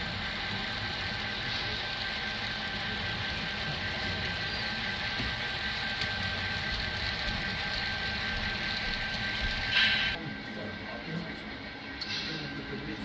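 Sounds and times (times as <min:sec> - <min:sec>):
model trains rumbling with whine: 0:00.0 - 0:13.0.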